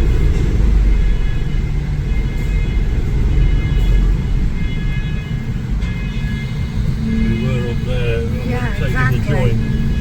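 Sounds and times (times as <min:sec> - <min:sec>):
car cabin rumble: 0:05.5 - 0:10.0.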